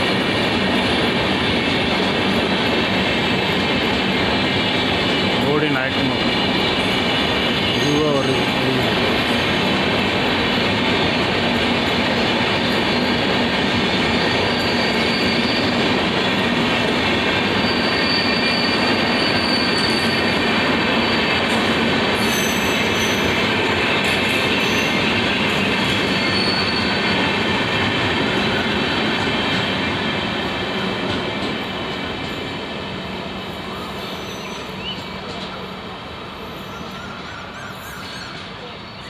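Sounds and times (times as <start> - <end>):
steel wheels rumbling on rail: 0.0 - 39.0
high-pitched wheel squeals: 14.1 - 15.8, 17.6 - 21.3, 22.2 - 23.4, 26.0 - 27.1.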